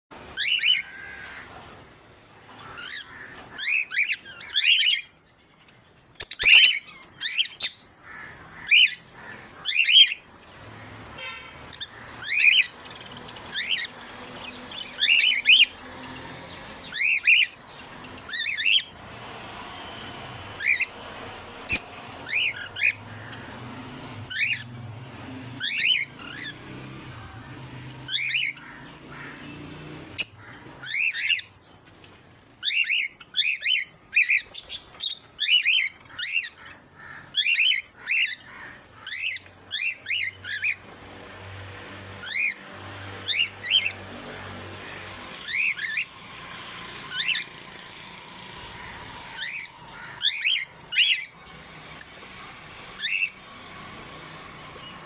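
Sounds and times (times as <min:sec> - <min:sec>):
parrot whistling and squawking: 0:06.2 - 0:07.9, 0:20.6 - 0:23.0.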